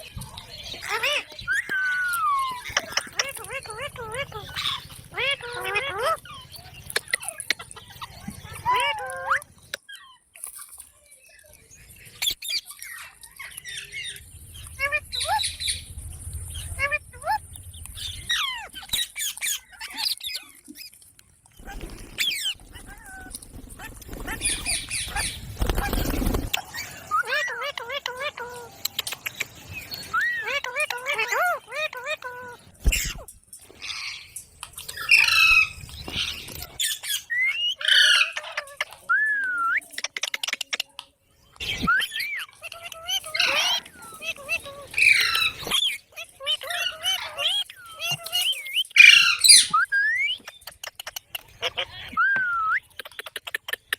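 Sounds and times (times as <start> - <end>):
parrots chirping and squawking: 0.0 - 53.9
parrot whistle: 1.4 - 2.6.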